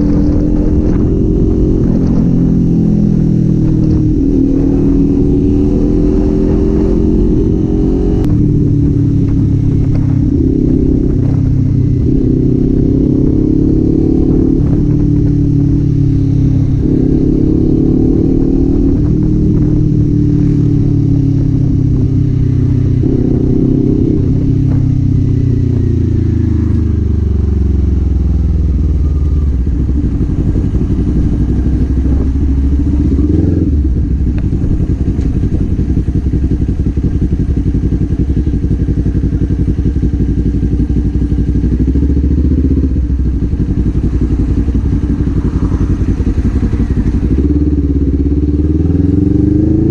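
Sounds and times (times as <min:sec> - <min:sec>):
motorcycle engine revving: 0:00.0 - 0:49.9
motorcycle engine idling: 0:21.7 - 0:49.2.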